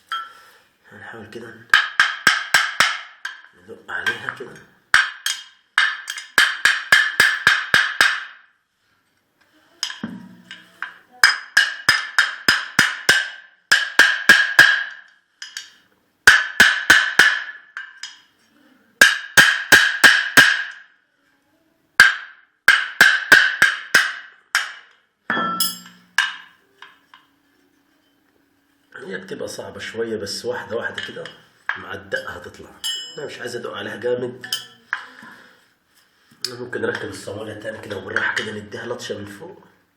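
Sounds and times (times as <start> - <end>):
metal-on-metal tapping: 4.1 - 8.4, 9.8 - 18.3, 22.0 - 27.2, 32.2 - 33.4, 34.4 - 35.2.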